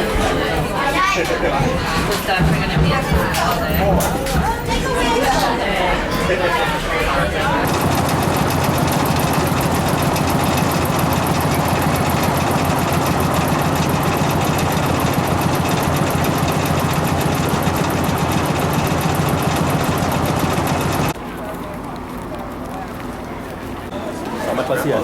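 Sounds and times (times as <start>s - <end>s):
train running: 0.0s - 25.0s.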